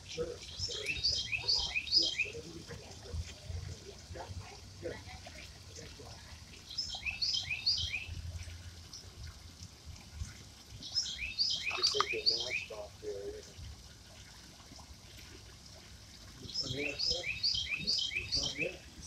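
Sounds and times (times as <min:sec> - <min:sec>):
songbird chirping: 0:00.0 - 0:04.0, 0:04.8 - 0:09.1, 0:10.7 - 0:13.5, 0:16.3 - 0:19.0.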